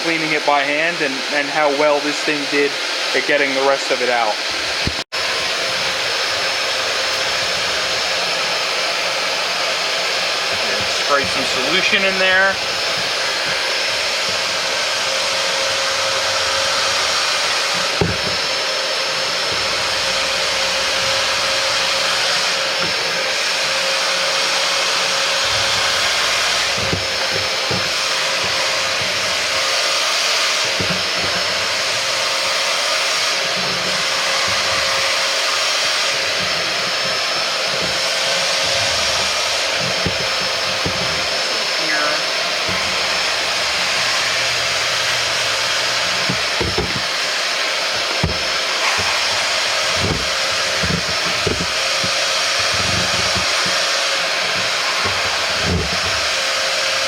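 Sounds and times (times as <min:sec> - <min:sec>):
suction motor whining: 0:00.0 - 0:57.0
tool knocking against floor: 0:17.7 - 0:18.6, 0:25.0 - 0:29.5, 0:30.6 - 0:31.6, 0:33.6 - 0:41.4, 0:42.6 - 0:56.5.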